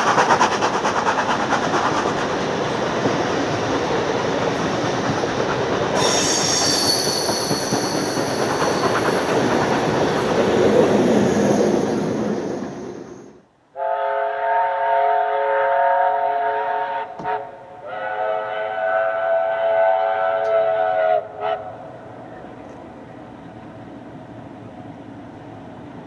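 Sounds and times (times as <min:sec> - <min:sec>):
train wheels clattering: 0:00.0 - 0:13.3
diesel locomotive engine: 0:00.0 - 0:26.0
steam locomotive whistle: 0:06.0 - 0:09.0, 0:13.8 - 0:21.9
high wheel squeal: 0:06.0 - 0:09.6, 0:11.0 - 0:13.4.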